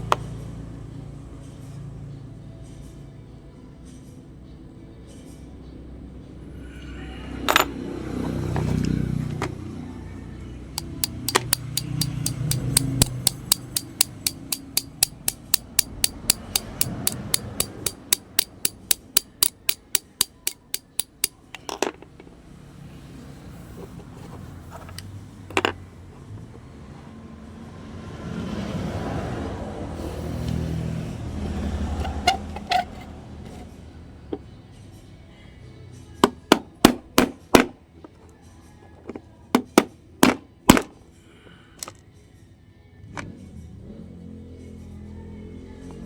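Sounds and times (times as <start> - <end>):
sharp mechanical clicks: 10.8 - 21.3.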